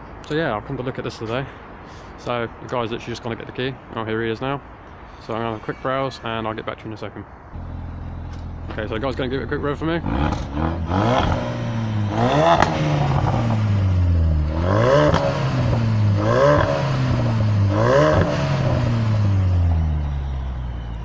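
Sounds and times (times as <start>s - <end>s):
car engine revving: 7.6s - 21.0s.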